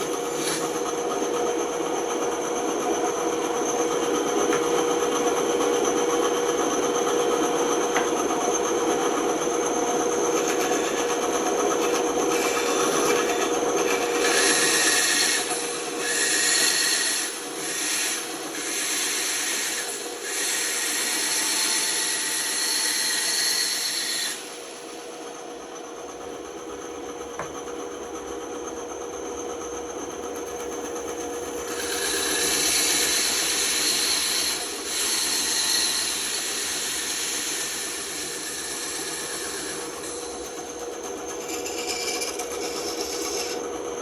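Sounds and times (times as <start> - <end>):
saw blade cutting wood: 0.0 - 0.9, 10.4 - 24.8, 31.6 - 43.7
band saw humming: 0.0 - 24.9, 31.6 - 44.0.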